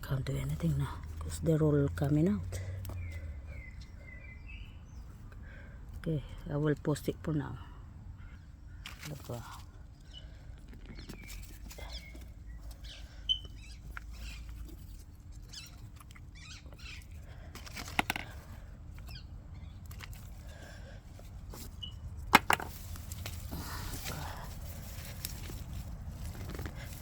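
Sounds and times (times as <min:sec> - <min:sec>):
plants and soil rustling: 0:08.7 - 0:27.0.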